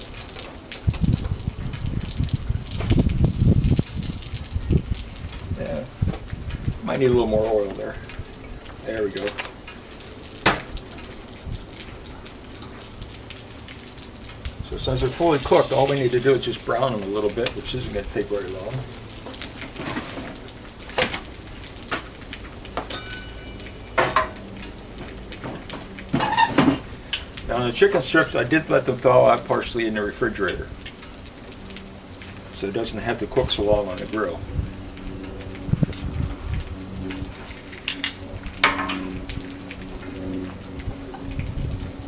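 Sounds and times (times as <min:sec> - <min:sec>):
sharp crackles: 0:00.0 - 0:42.0
chicken sizzling on a griddle: 0:14.3 - 0:31.4.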